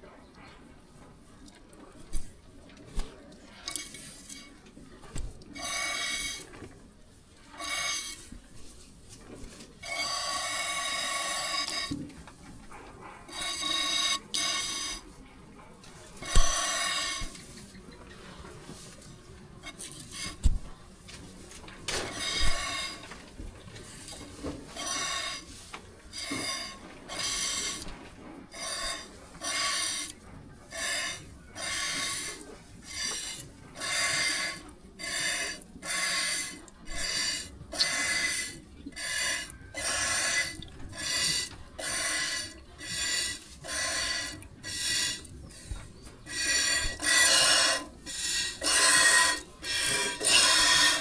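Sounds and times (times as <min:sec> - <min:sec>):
milk squirting from teats: 0:07.6 - 0:08.3, 0:09.8 - 0:11.9, 0:16.1 - 0:17.7, 0:19.6 - 0:20.7, 0:22.1 - 0:23.2, 0:23.8 - 0:25.5, 0:26.1 - 0:51.0.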